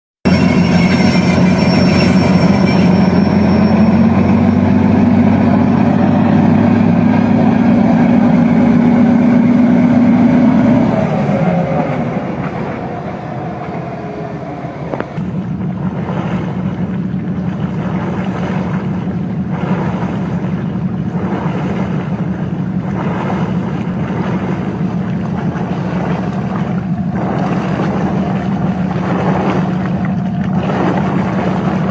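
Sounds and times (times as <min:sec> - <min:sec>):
train engine drone: 0:00.3 - 0:16.8
rumbling hum with knocks: 0:00.3 - 0:31.9.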